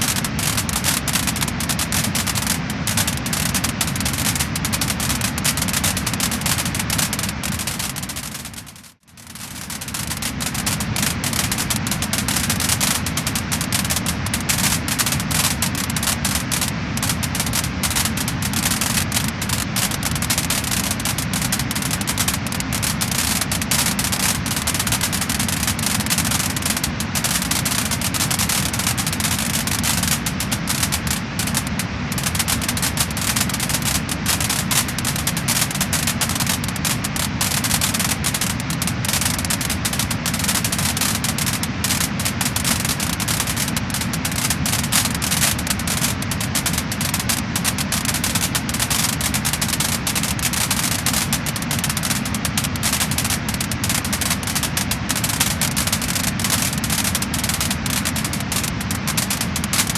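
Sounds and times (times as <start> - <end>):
fire hiss: 0.0 - 45.0
wood fire crackling and popping: 0.0 - 59.9.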